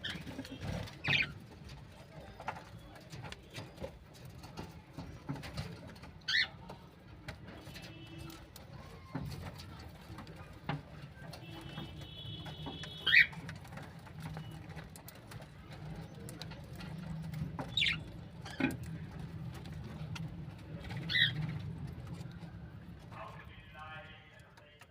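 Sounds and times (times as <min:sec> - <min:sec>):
budgies chirping: 0:00.0 - 0:01.5, 0:06.2 - 0:06.6, 0:11.3 - 0:22.3.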